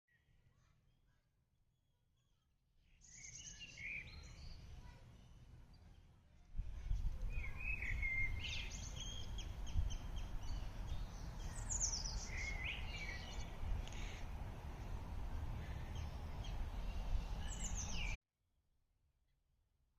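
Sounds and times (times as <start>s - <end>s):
songbirds chirping and singing: 2.9s - 18.2s.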